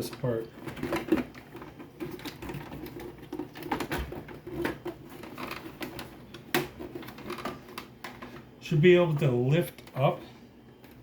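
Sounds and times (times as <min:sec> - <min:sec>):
plastic parts clicking and knocking: 0:00.0 - 0:08.5.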